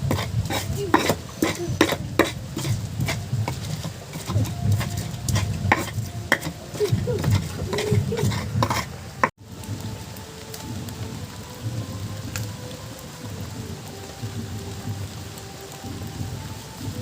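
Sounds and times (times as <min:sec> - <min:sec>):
metal utensil stirring in pan: 0:00.0 - 0:09.4
light sizzling: 0:00.0 - 0:17.0
steady hiss: 0:00.0 - 0:17.0.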